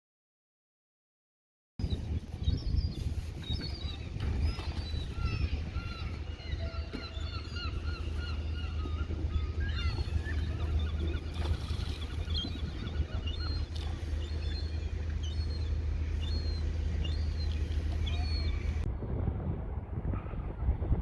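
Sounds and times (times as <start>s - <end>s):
birds chirping and squawking: 2.5s - 18.9s
low rumble: 5.1s - 21.0s.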